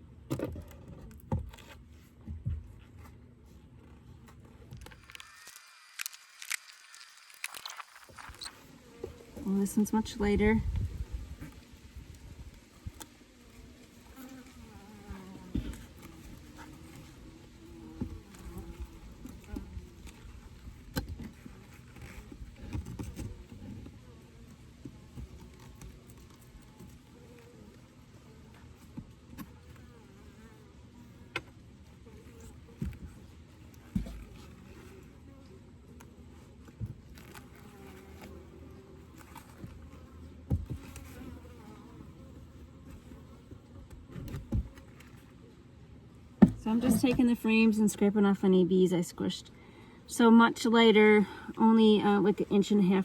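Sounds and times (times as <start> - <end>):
honeybees buzzing: 3.8 - 53.0
bees buzzing: 4.8 - 22.6.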